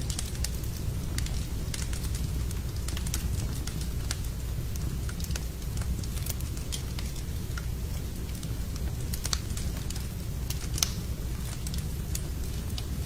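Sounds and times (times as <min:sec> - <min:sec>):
low fire rumble: 0:00.0 - 0:13.0
wood fire crackling and popping: 0:00.0 - 0:13.0.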